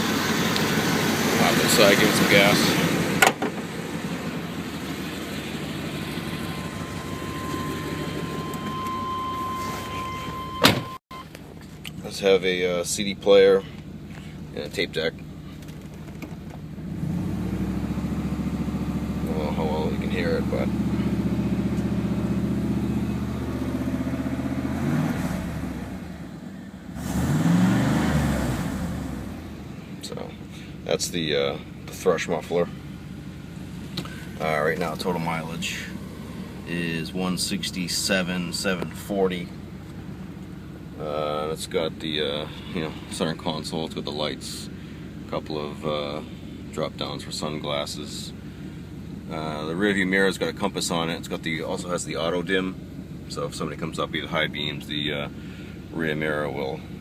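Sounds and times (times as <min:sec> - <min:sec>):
engine running through exhaust: 0:00.0 - 0:12.1, 0:13.6 - 0:53.4, 0:54.1 - 0:57.0
faint steady high tone: 0:06.0 - 0:11.4.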